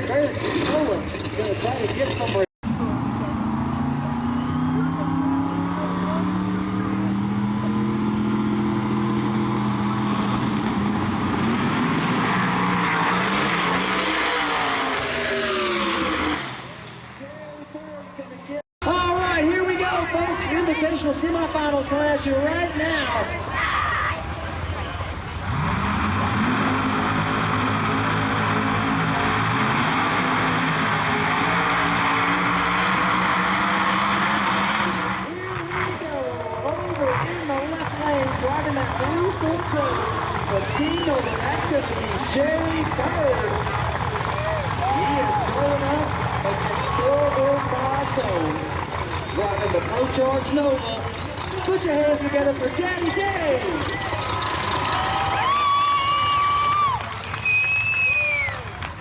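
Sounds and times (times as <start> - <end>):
drag race cars launching: 0.0 - 23.6, 24.2 - 59.0.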